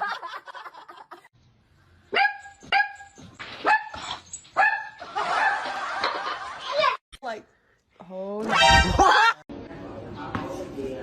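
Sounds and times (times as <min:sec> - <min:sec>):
dog barking: 0:02.1 - 0:04.0.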